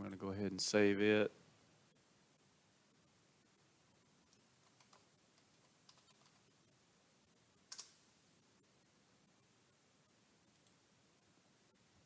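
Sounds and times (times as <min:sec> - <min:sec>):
computer keyboard typing: 0:04.3 - 0:06.5, 0:07.7 - 0:08.0.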